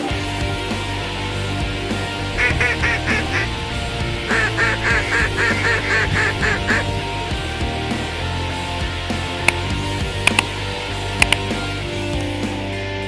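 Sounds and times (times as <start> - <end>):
rock guitar music: 0.0 - 13.0
duck quacking: 2.4 - 7.0.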